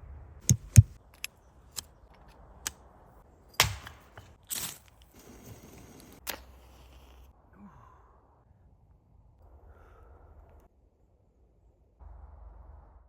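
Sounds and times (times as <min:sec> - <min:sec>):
sharp cracks and knocks: 0:00.4 - 0:02.8, 0:03.5 - 0:05.1.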